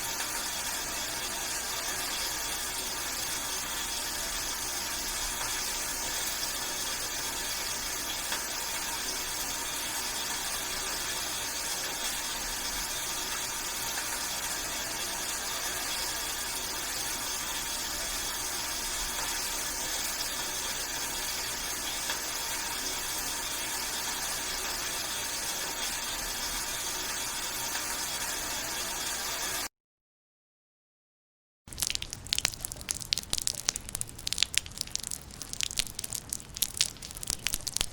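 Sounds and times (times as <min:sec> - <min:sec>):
raindrop ticks: 0:31.7 - 0:37.9.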